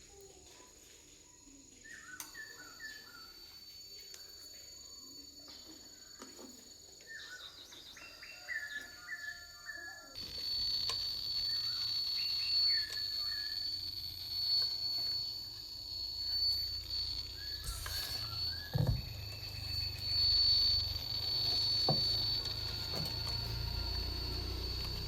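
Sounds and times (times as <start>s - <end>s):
high-pitched whine: 0.0s - 25.0s
bird chirps: 1.3s - 25.0s
low hum: 10.2s - 25.0s.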